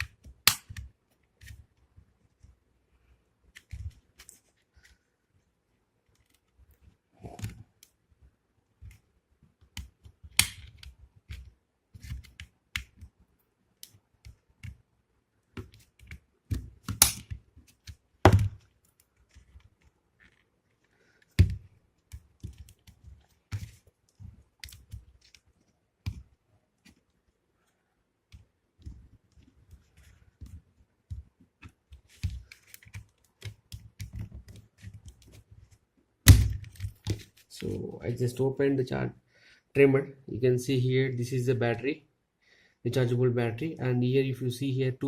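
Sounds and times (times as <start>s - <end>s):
plastic casing snapping: 10.4s - 10.8s, 16.8s - 17.4s
knife prying plastic housing: 16.9s - 17.3s.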